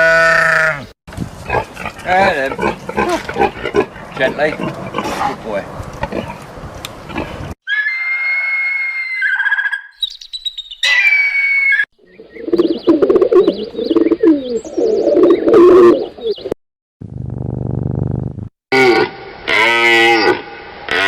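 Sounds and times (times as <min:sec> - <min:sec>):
whistled bird calls: 0:07.7 - 0:16.5.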